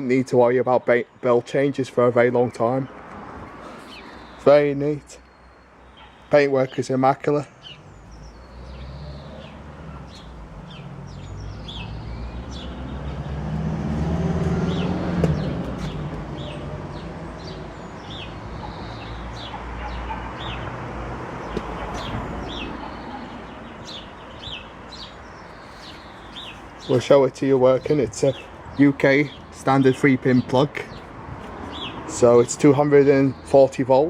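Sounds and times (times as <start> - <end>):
small birds chirping: 2.4 - 34.0
passing vehicle rumble: 7.6 - 28.8.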